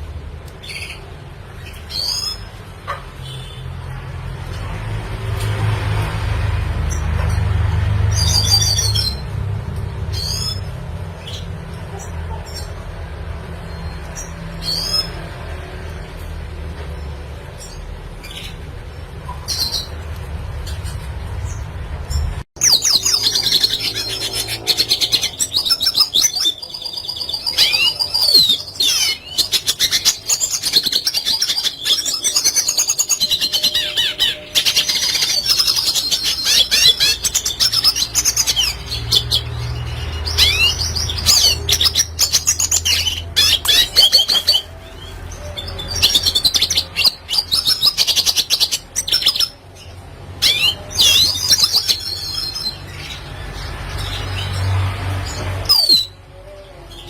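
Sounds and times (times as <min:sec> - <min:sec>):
bird twittering song: 0:16.9 - 0:57.0.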